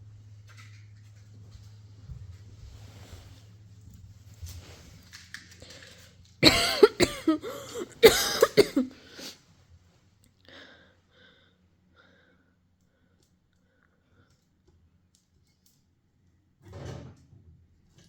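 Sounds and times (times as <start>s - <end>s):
person coughing hard: 6.4s - 9.4s.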